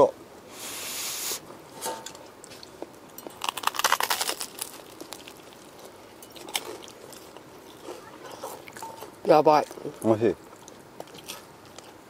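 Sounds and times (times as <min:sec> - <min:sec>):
food crunching while chewed: 0:02.2 - 0:12.0.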